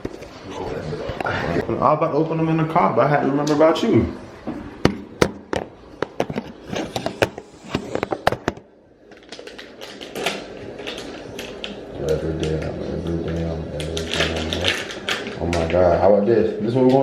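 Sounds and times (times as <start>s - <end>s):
plastic packaging crinkling: 6.4s - 16.1s.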